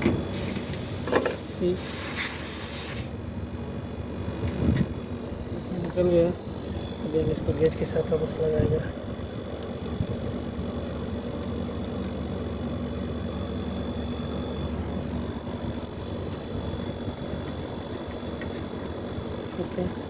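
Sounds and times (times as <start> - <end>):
air conditioner humming: 0.0 - 20.0
thin high whine: 0.3 - 3.2.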